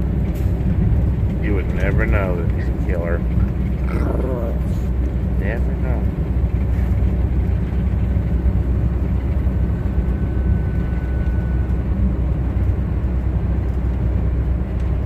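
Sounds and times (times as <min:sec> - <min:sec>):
diesel truck engine rumble: 0:00.0 - 0:15.0
faint thin whine: 0:09.8 - 0:11.8.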